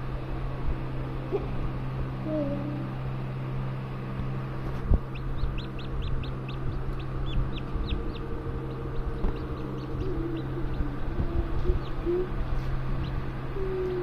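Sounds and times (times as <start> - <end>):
steady low hum: 0.0 - 14.0
chicks peeping: 4.6 - 14.0.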